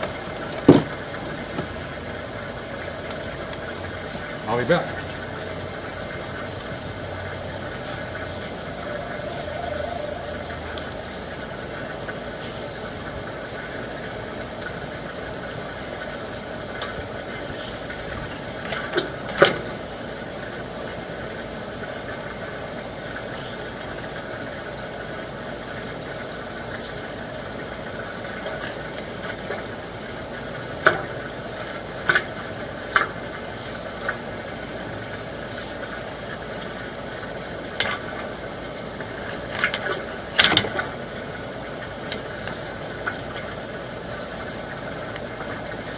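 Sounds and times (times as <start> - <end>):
steady mechanical drone: 0.0 - 45.9.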